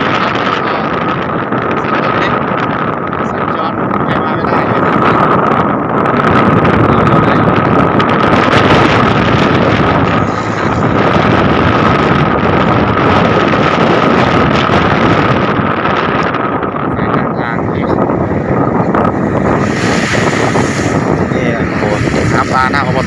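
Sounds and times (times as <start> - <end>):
steady whine: 0.0 - 23.0
wind buffeting microphone: 0.0 - 23.0
water rushing: 6.6 - 14.9, 16.6 - 23.0.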